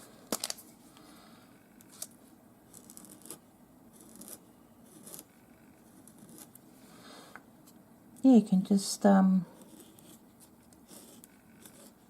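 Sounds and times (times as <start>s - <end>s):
marker scratching on paper: 4.0s - 6.5s, 9.6s - 12.0s.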